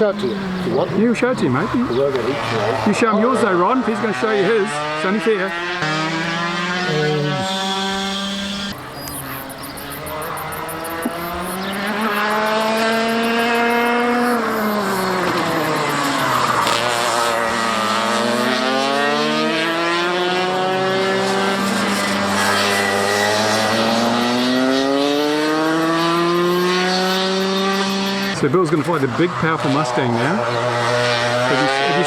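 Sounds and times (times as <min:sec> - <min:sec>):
model airplane motor and propeller: 0:00.0 - 0:29.4.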